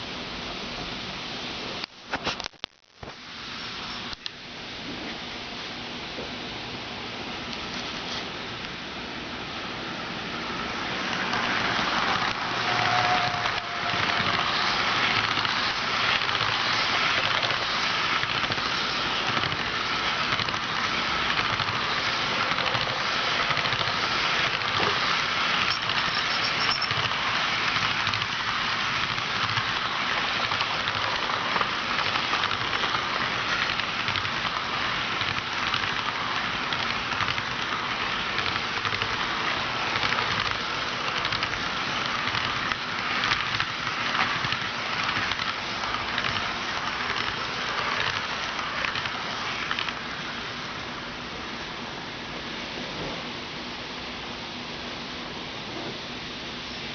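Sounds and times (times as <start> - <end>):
locomotive motor: 10.4 - 50.3
model train wheels clattering on rails: 10.4 - 50.9.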